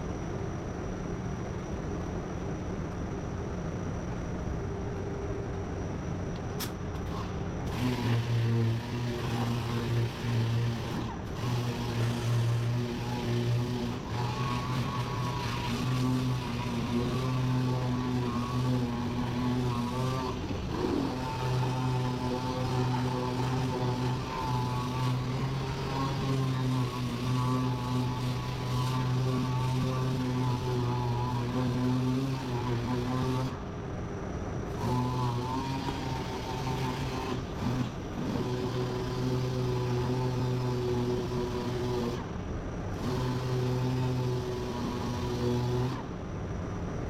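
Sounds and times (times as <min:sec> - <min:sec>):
small motor humming: 0:04.6 - 0:33.8, 0:34.6 - 0:46.3.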